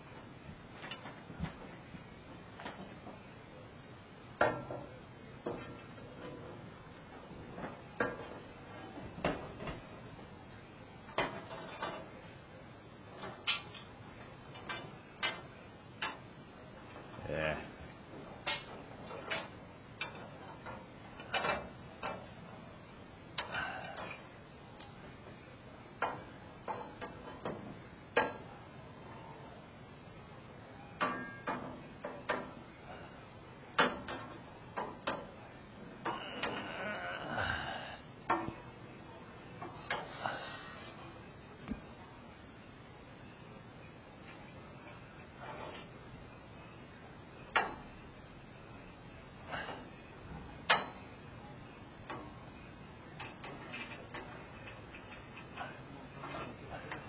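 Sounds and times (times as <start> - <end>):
metal clicks and clanks: 13.2 - 13.9, 53.2 - 57.0.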